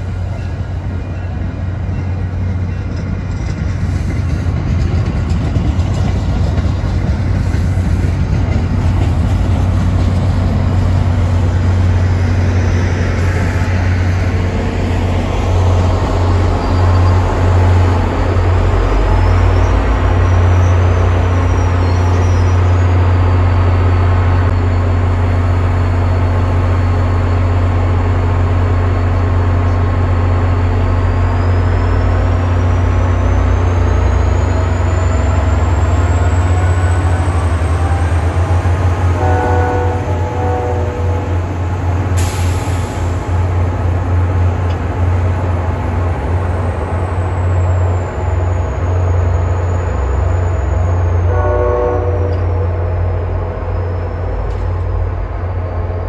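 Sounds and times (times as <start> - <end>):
diesel locomotive engine drone: 0.0 - 56.0
faint train horn: 37.8 - 41.5, 51.2 - 52.9.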